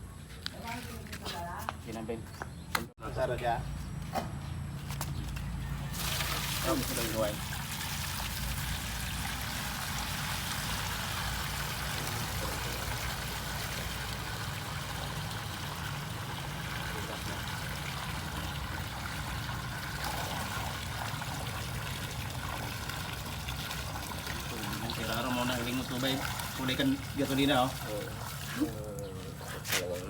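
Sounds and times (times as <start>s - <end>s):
gasoline trickling into a basin: 5.7s - 29.6s.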